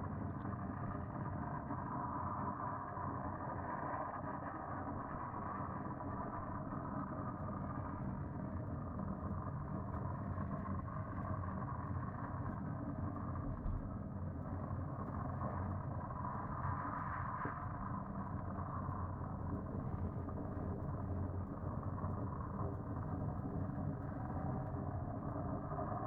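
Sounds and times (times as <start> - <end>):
loud droning hum: 9.0 - 26.0.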